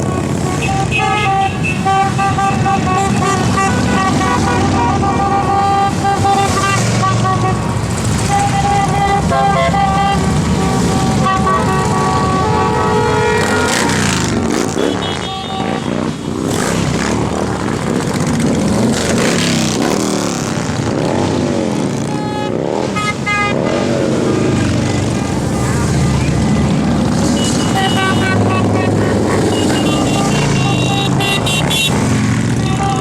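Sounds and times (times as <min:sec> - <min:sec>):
motorcycles revving past: 0:15.9 - 0:32.6.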